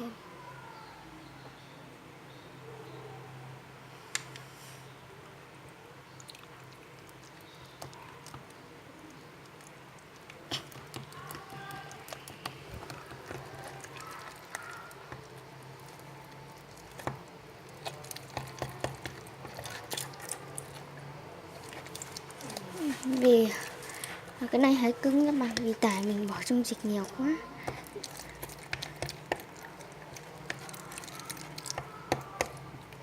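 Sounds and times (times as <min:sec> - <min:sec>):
slime squishing: 0:06.1 - 0:33.0
stirrer clicking on container: 0:17.8 - 0:20.9, 0:21.6 - 0:33.0.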